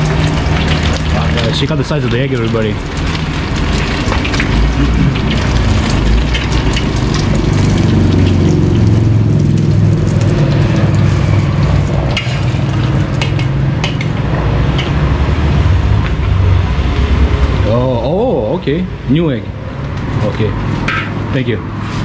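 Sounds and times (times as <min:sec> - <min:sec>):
egg sizzling in a wok: 0:00.0 - 0:16.2
metal spatula scraping wok: 0:10.2 - 0:15.2.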